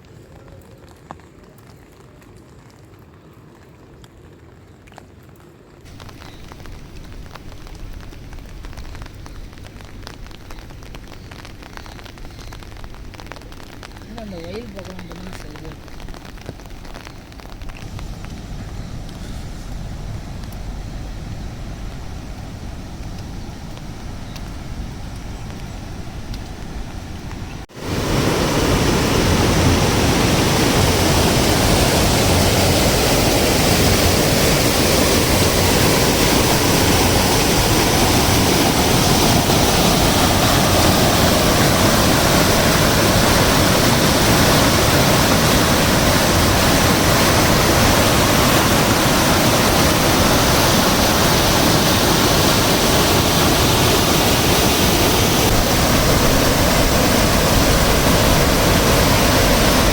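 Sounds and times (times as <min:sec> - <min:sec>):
waterfall rushing: 0:05.9 - 0:10.8, 0:17.8 - 0:59.9.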